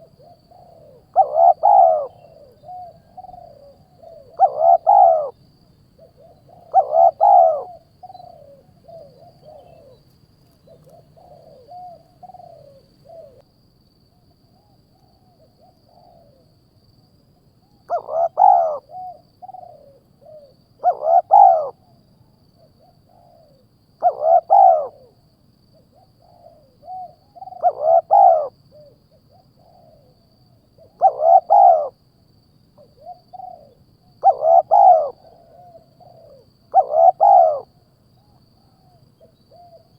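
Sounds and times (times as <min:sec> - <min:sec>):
bird calling: 0:00.0 - 0:05.4, 0:06.0 - 0:13.4, 0:17.9 - 0:21.8, 0:24.0 - 0:25.1, 0:26.3 - 0:30.1, 0:30.8 - 0:31.9, 0:32.9 - 0:38.4.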